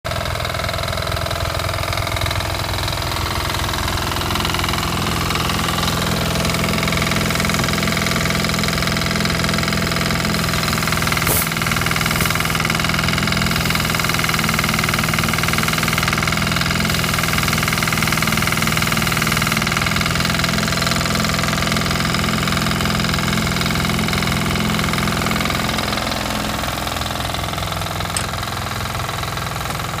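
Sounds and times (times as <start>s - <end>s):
diesel engine running: 0.1s - 30.0s
sharp click: 28.1s - 28.4s.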